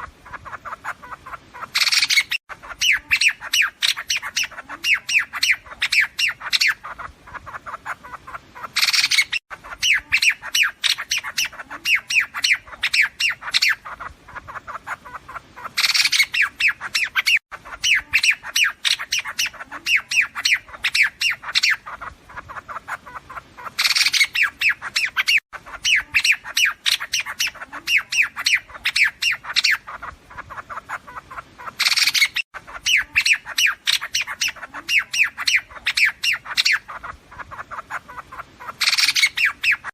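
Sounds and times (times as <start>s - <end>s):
bird squawk and chattering: 0.0s - 39.9s.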